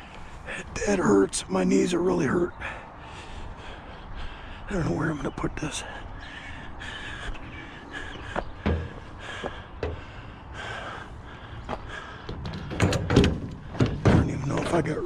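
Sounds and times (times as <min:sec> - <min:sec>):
crows cawing: 0:05.6 - 0:12.4
light knocks and clicks: 0:08.3 - 0:09.1, 0:09.8 - 0:10.1, 0:11.7 - 0:14.8.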